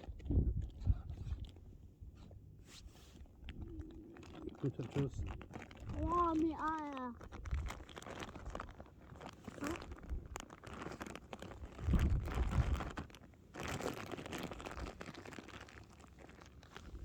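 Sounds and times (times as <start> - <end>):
plastic packaging crinkling: 3.8 - 17.0.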